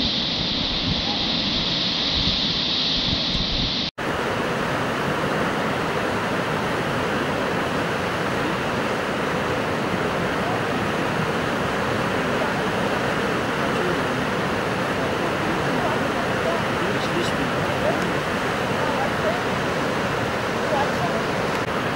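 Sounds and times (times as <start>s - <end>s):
river whitewater rushing: 4.0s - 21.9s.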